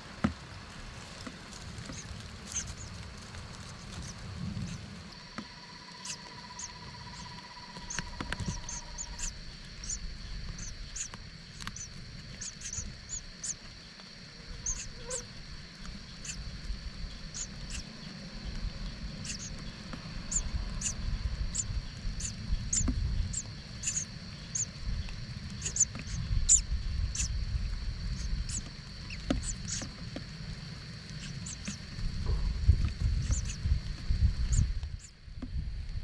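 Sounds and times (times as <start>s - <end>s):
small animal squeaking: 6.0s - 10.0s, 11.7s - 13.6s, 14.4s - 15.3s, 16.2s - 16.4s, 17.3s - 17.8s, 19.2s - 19.5s, 21.6s - 24.7s, 25.6s - 27.3s, 33.2s - 33.6s
low rumble: 16.0s - 29.9s, 30.5s - 36.0s.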